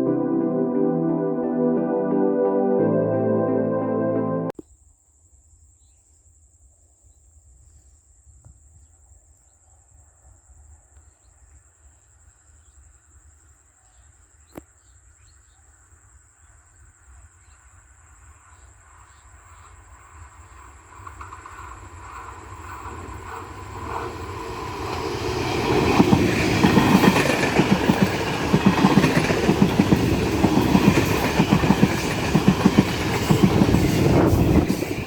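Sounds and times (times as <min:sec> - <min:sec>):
insects droning: 0:10.7 - 0:35.0
approaching train rumble: 0:20.5 - 0:35.0.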